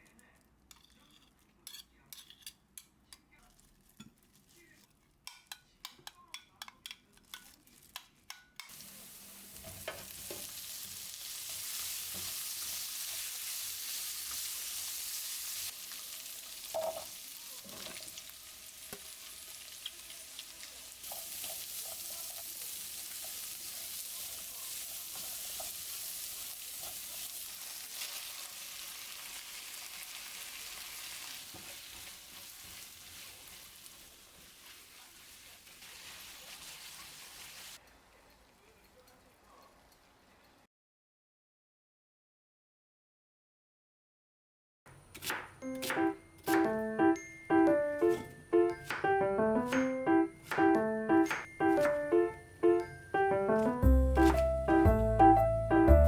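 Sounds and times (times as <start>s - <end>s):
food sizzling in a pan: 7.2s - 40.7s.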